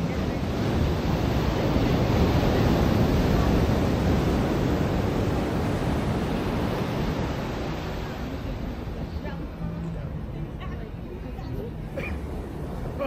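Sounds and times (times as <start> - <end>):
ocean surf washing onto beach: 0.0 - 13.0.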